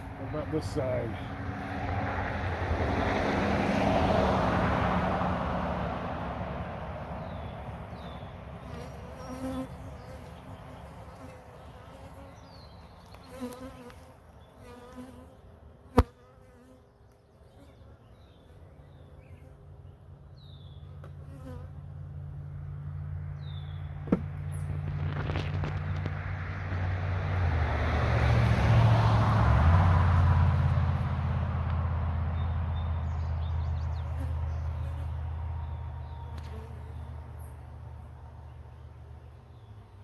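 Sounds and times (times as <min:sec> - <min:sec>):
honeybees buzzing: 0:07.2 - 0:16.8.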